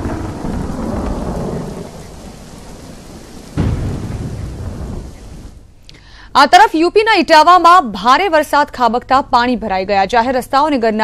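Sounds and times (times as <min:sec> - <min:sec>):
heavy rain with deep rumble: 0:00.0 - 0:05.8.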